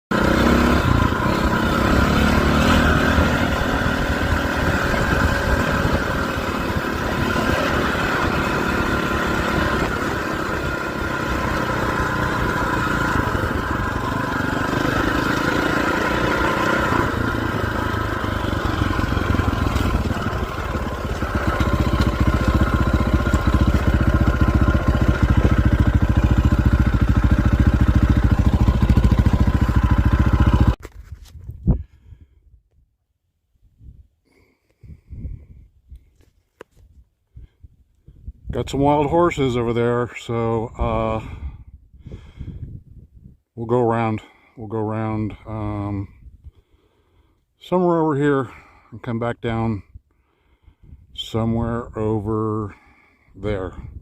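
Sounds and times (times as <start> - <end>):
dirt bike engine revving: 0.1 - 30.8.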